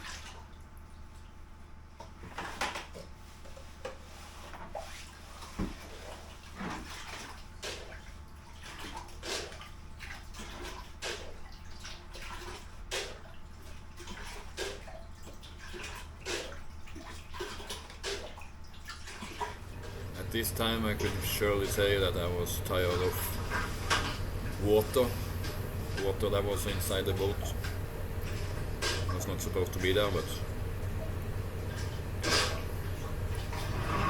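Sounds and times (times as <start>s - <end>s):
water splashing and dripping: 5.8s - 19.8s
steady low hum: 19.2s - 34.0s.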